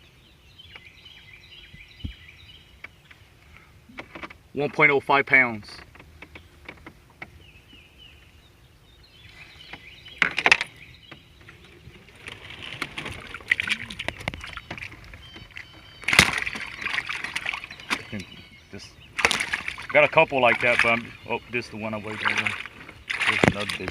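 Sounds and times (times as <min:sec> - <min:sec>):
water sloshing and splashing: 0:09.6 - 0:23.9.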